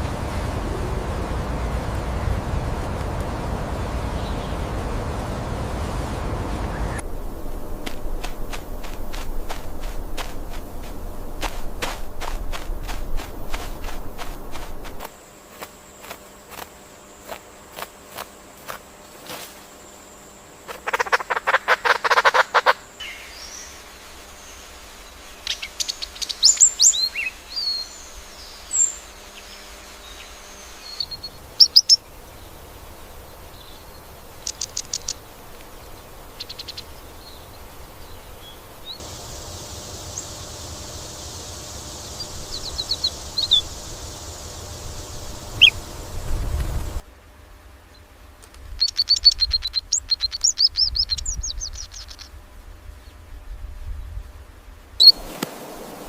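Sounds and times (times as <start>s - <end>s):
low rumble: 0.0s - 15.1s
background hiss: 0.0s - 56.0s
forest birds chirping and trilling: 4.2s - 4.7s, 6.7s - 15.1s, 20.6s - 46.5s, 48.8s - 52.4s
bird rattling call: 7.2s - 15.1s, 20.7s - 22.8s, 34.2s - 45.9s, 48.8s - 52.3s.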